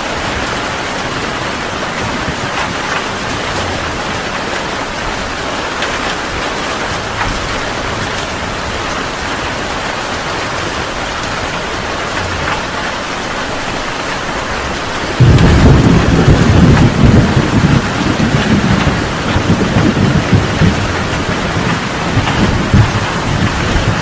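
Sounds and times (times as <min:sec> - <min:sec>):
heavy rain falling: 0:00.0 - 0:24.0
deep thunder rumble: 0:15.0 - 0:24.0.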